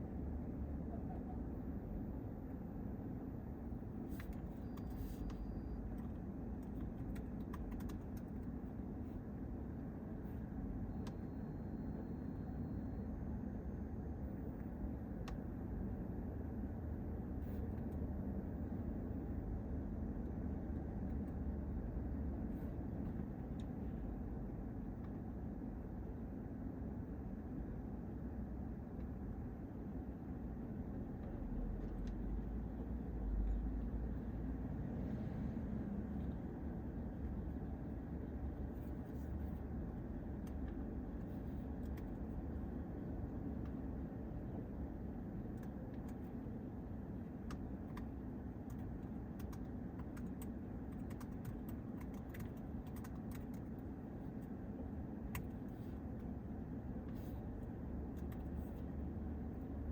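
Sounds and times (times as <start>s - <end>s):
road traffic rumble: 0.0s - 59.9s
vehicle approaching: 33.2s - 37.6s.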